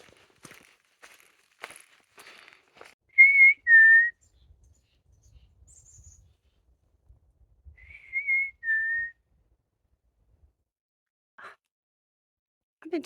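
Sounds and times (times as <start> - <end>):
songbird singing: 3.1 - 9.1
two-note human whistle: 7.8 - 9.1.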